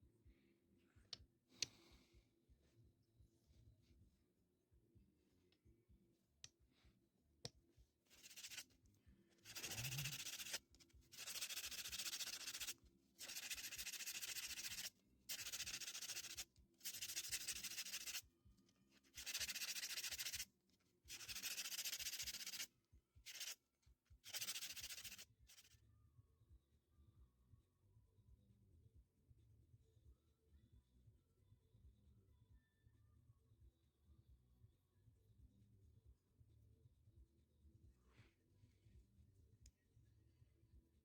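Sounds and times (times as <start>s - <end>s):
sandpaper scratching wood: 8.2s - 8.6s, 9.5s - 10.6s, 11.2s - 18.2s, 19.2s - 20.4s, 21.1s - 22.7s, 23.3s - 23.6s, 24.2s - 25.7s.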